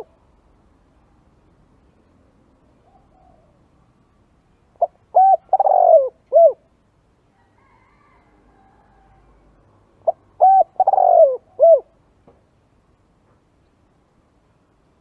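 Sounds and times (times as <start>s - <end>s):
dove cooing: 2.8s - 3.6s, 4.8s - 6.7s, 10.0s - 12.0s.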